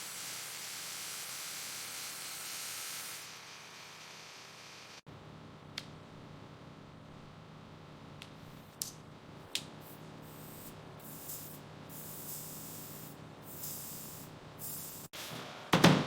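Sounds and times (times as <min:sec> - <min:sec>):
hissing bursts: 0:10.3 - 0:15.3.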